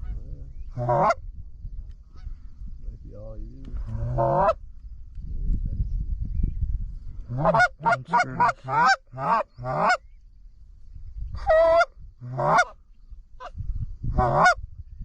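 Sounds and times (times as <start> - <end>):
goose honking and clucking: 0.0 - 1.2, 4.0 - 4.6, 7.3 - 10.0, 11.4 - 12.8, 14.2 - 14.6.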